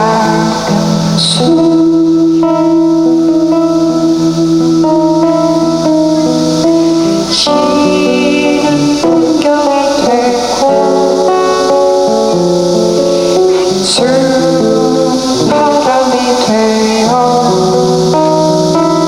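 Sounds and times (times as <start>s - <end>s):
shaker hiss: 0.0s - 19.0s.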